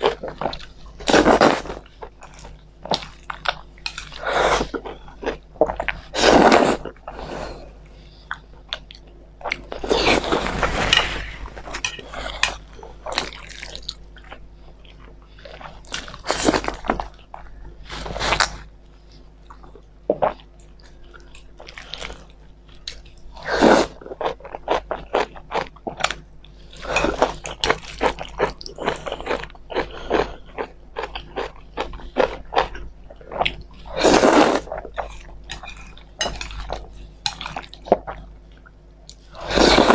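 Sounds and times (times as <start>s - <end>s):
chewing and slurping noodles: 11.7s - 39.9s.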